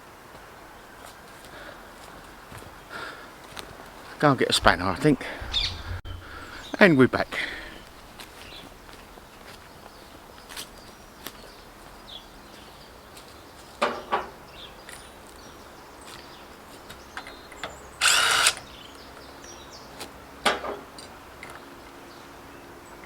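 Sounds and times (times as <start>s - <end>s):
power tool burst: 18.0s - 18.6s.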